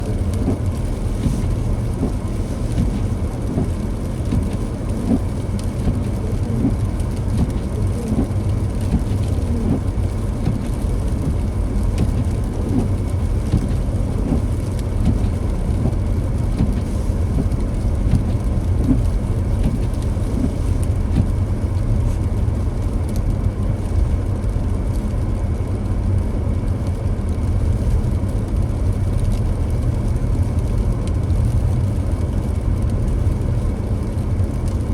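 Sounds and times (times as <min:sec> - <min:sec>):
tyres hissing on wet road: 0:00.0 - 0:25.9
car engine and tyre rumble: 0:00.0 - 0:34.9.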